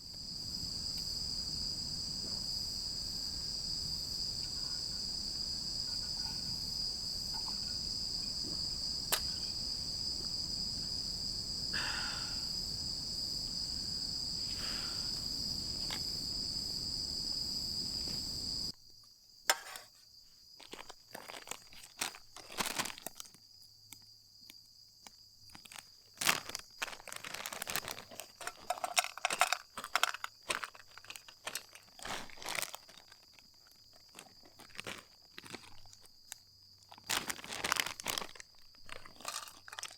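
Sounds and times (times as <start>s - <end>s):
insects trilling: 0.0s - 18.8s, 19.5s - 39.9s
crunching and crinkling of handling: 20.6s - 24.0s, 25.0s - 39.9s.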